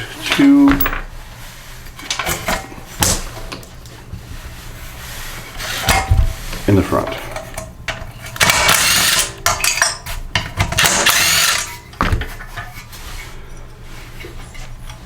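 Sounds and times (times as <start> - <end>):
ratchet wrench ratcheting: 8.4 - 10.0, 10.8 - 11.8.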